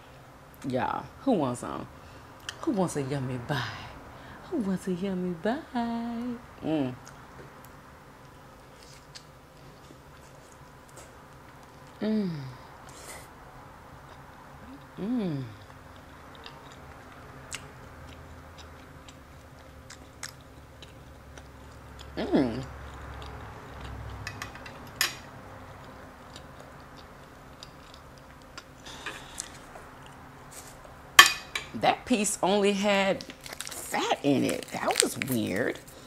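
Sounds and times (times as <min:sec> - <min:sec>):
person chewing: 0:07.0 - 0:12.0, 0:15.6 - 0:25.0, 0:25.6 - 0:30.8, 0:33.2 - 0:33.9
short hummed vocal sounds: 0:11.9 - 0:13.3, 0:14.6 - 0:15.8, 0:22.1 - 0:22.8.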